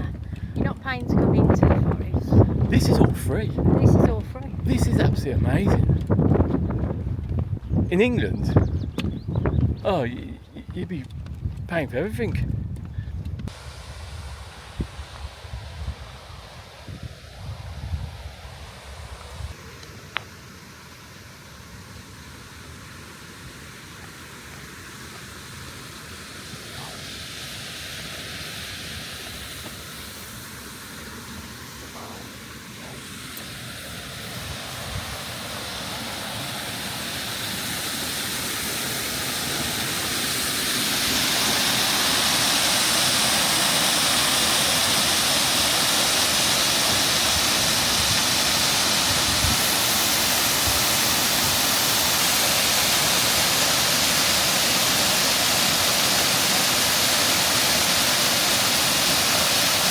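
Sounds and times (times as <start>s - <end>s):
waterfall rushing: 22.7s - 59.9s.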